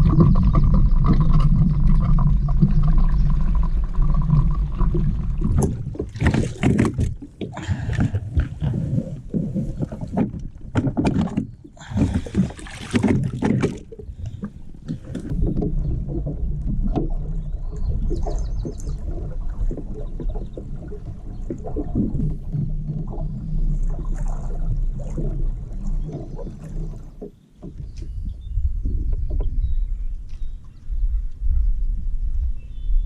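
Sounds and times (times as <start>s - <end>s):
low hum: 0.0s - 6.6s, 13.8s - 27.1s
water splashing against kayak hull: 0.0s - 31.0s.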